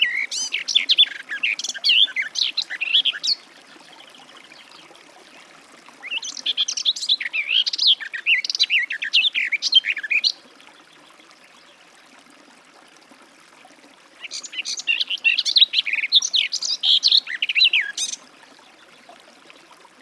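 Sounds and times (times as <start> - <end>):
warbler singing: 0.0 - 4.8, 14.2 - 19.0.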